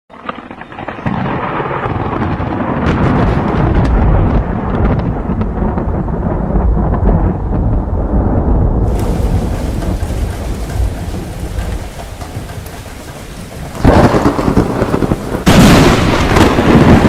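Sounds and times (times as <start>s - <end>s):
scattered crackles: 0.1s - 6.3s, 8.8s - 17.0s
loud rumbling and hissing noise: 8.8s - 17.0s.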